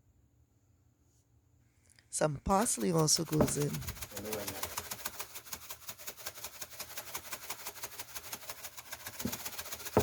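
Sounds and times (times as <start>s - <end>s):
fast faint ticking: 2.5s - 10.0s.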